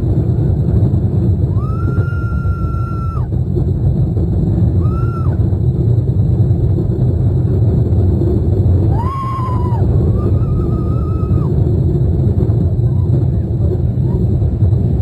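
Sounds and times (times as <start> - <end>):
roller coaster rumble: 0.0 - 15.0
rider screaming: 1.5 - 3.3, 8.9 - 11.5.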